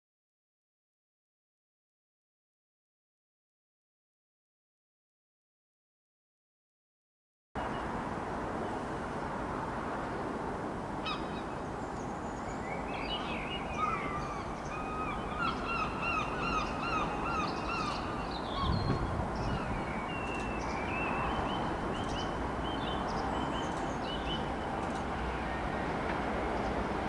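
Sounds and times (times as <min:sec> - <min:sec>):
outdoor background rush: 0:07.6 - 0:27.0
small birds chirping and trilling: 0:11.1 - 0:25.0.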